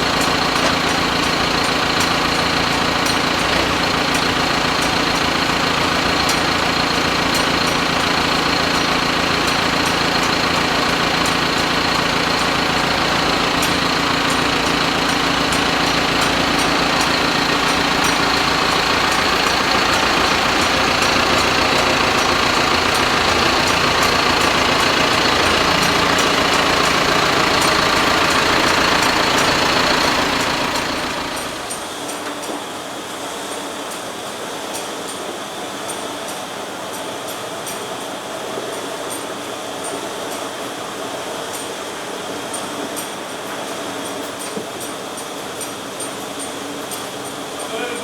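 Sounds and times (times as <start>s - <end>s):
faint regular ticking: 0.0s - 31.8s
engine idling: 0.0s - 32.1s.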